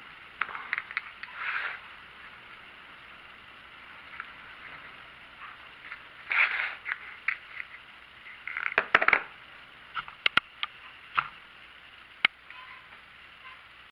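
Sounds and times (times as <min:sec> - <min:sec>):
sharp small clicks and knocks: 0:00.4 - 0:01.4, 0:05.8 - 0:09.3, 0:10.0 - 0:11.4
rustling scrapes: 0:00.5 - 0:01.9, 0:04.6 - 0:07.8.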